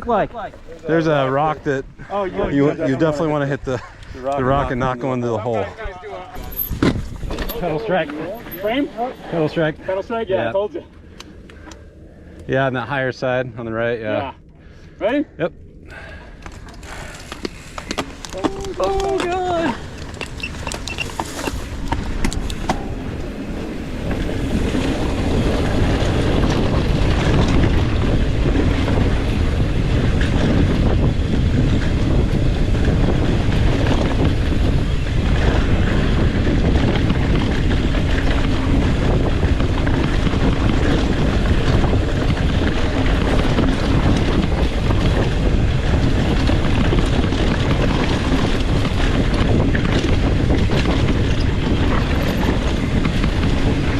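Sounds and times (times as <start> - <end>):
wind buffeting microphone: 0.0 - 53.9
bike tyres rumbling on dirt: 6.4 - 10.5, 15.9 - 53.9.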